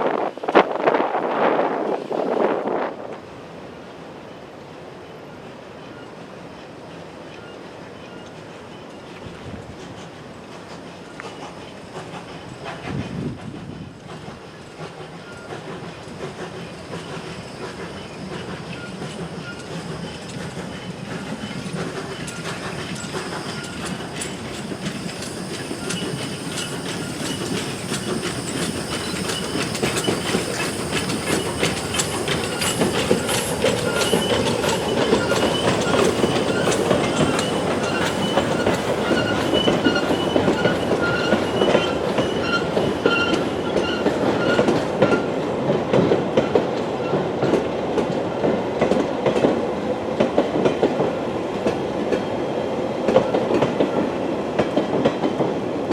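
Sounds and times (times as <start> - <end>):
train wheels clattering on rails: 5.4 - 55.9
thin wheel squeal: 16.7 - 45.3.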